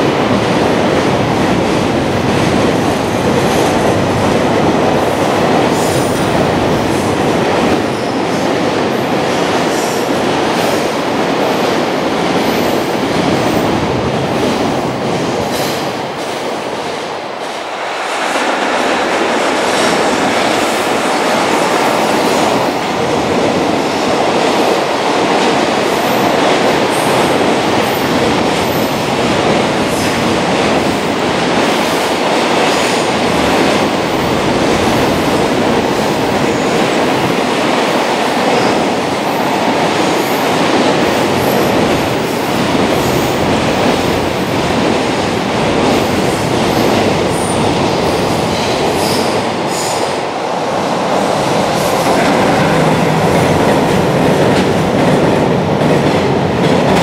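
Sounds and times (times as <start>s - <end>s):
clickety-clack of rail joints: 0.0s - 57.0s
train wheels rumbling on rail: 0.0s - 57.0s.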